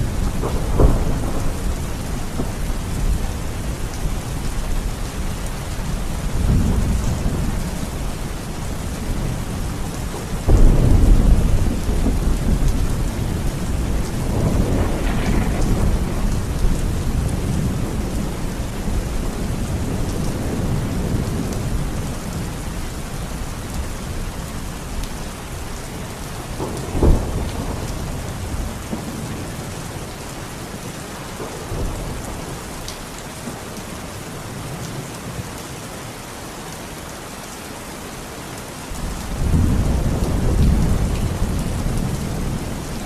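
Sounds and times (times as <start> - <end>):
thunder rumbling: 0.0 - 25.0, 26.2 - 30.1, 39.0 - 43.0
heavy rain: 0.0 - 43.0.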